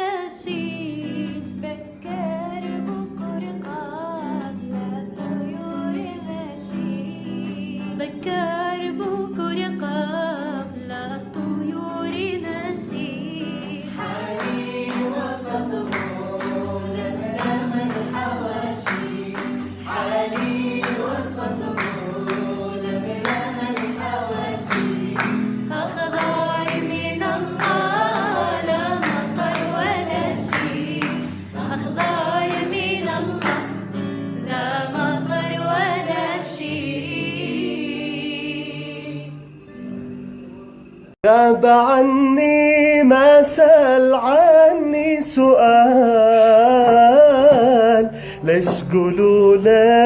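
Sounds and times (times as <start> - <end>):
person singing melodically: 0.0 - 39.6, 41.2 - 50.0
percussion beat: 48.6 - 49.1.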